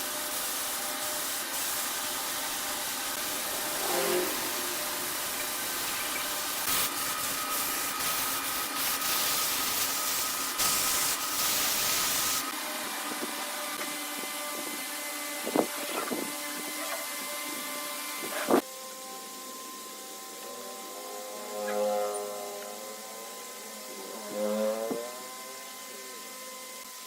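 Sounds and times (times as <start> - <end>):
tool hissing on spinning wood: 0.0 - 21.0
lathe motor running: 0.1 - 11.3.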